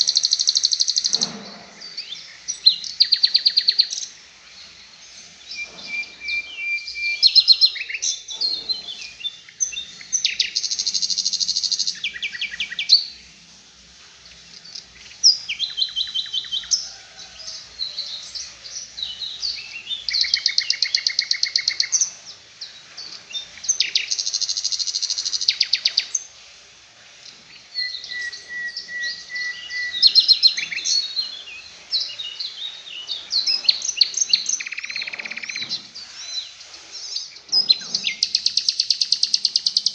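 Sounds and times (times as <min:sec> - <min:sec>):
songbird fast trills and chattering: 0:23.3 - 0:39.9.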